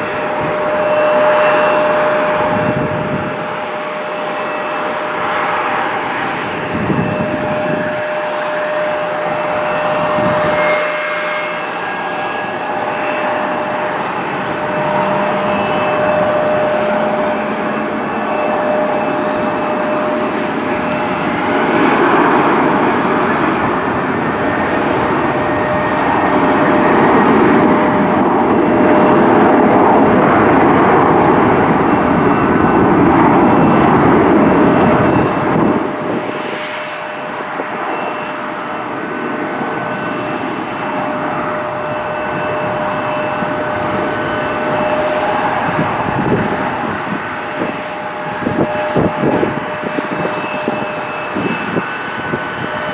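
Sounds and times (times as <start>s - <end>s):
jet engines passing: 0.0s - 52.9s.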